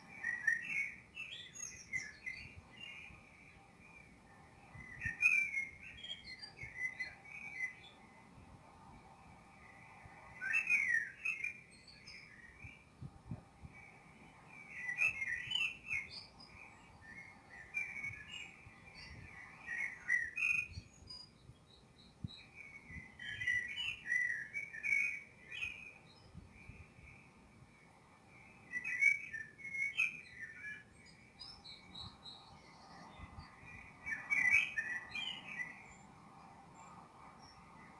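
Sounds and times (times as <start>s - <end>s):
songbirds chirping: 0.0s - 37.9s.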